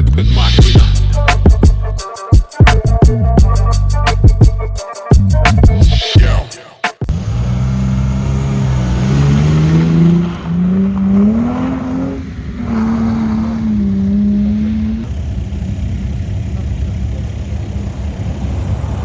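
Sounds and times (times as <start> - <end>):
intro music: 0.0 - 7.2
car engine revving hard: 7.1 - 16.2.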